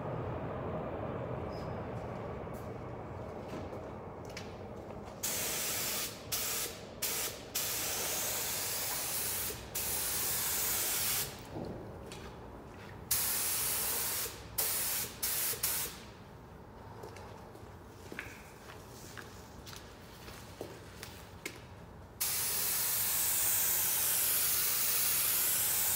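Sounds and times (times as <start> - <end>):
paint spray gun hissing: 5.2 - 11.4, 13.1 - 16.0, 22.2 - 25.9.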